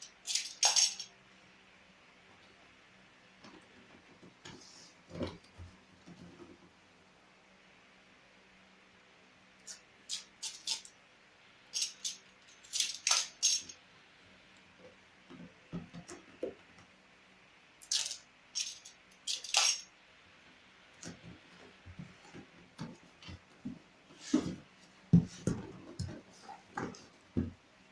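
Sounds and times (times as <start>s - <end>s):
tools clicking and clinking: 0.0s - 1.1s, 11.8s - 13.8s, 17.8s - 19.9s.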